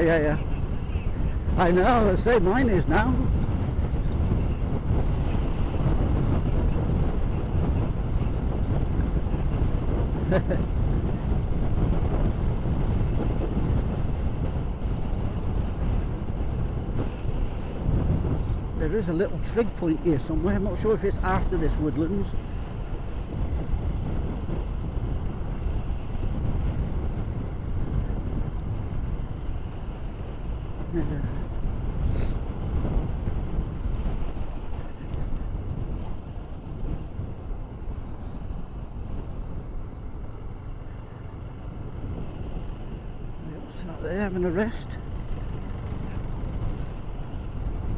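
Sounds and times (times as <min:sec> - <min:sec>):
motorcycle engine running: 0:00.0 - 0:18.8
motorcycle rumble: 0:00.0 - 0:47.9
wind buffeting microphone: 0:00.0 - 0:47.9.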